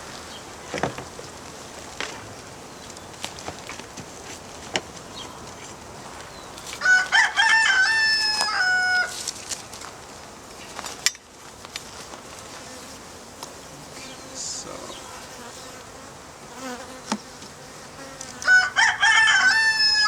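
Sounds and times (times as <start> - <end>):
rooster crowing: 6.8 - 9.2, 18.4 - 20.0.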